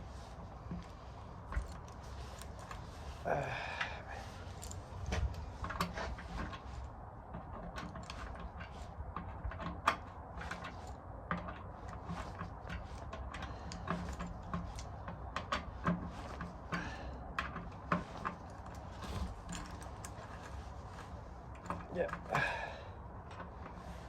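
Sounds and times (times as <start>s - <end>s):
hand tools clicking and knocking: 0.0s - 24.0s.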